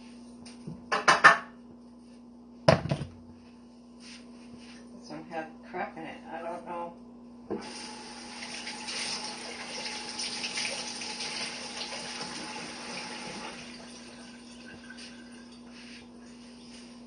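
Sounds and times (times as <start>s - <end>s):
tap water running into sink: 7.6s - 15.1s.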